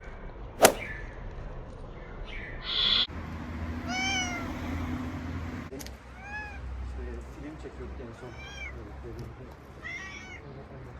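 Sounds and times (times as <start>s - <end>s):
brief hissing noise: 0.6s - 0.9s
sharp click: 0.6s - 0.9s
cat meowing: 3.9s - 4.9s, 6.2s - 6.6s, 8.2s - 8.8s, 9.8s - 10.4s.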